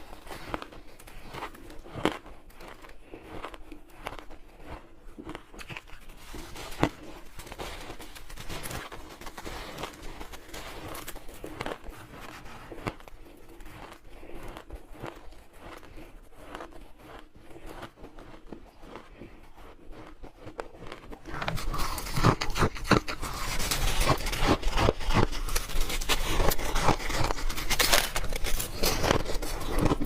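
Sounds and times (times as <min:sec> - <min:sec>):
crunching ice: 0:00.0 - 0:30.0.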